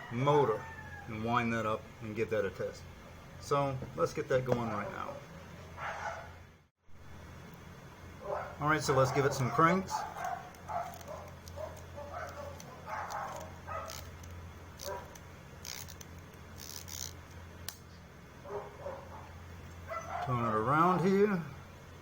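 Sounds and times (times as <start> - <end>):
steady electrical hum: 0.0 - 22.0
camera motor winding clicks: 10.2 - 17.8.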